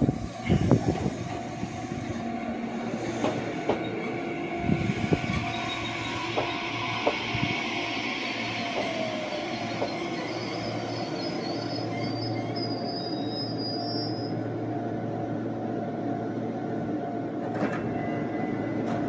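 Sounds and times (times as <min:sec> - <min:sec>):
train wheels rumbling on rail: 0:00.0 - 0:19.0
high wheel squeal: 0:03.0 - 0:14.4.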